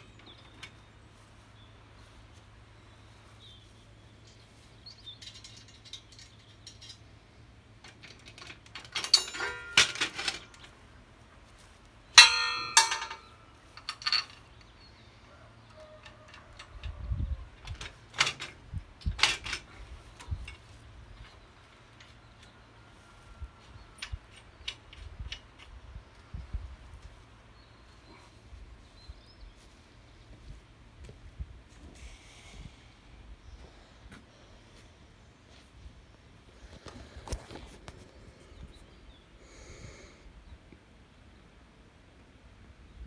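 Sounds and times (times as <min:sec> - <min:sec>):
metal parts clicking and knocking: 0:05.0 - 0:07.2, 0:07.8 - 0:10.8, 0:12.2 - 0:14.8, 0:15.7 - 0:22.6, 0:24.0 - 0:25.8
ringing metal clangs: 0:08.8 - 0:10.7, 0:12.1 - 0:14.4.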